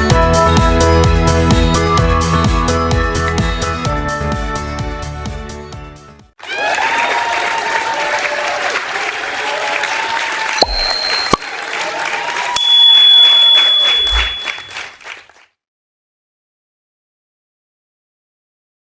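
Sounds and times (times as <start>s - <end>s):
crowd applauding and cheering: 6.4s - 15.1s
whistles: 10.6s - 11.6s, 12.5s - 14.9s.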